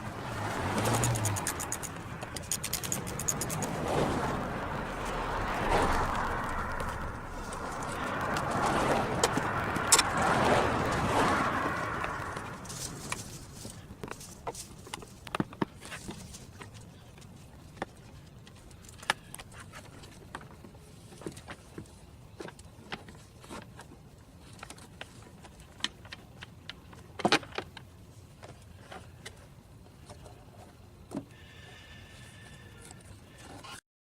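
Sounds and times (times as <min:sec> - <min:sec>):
tools clicking and knocking: 0:00.8 - 0:03.7.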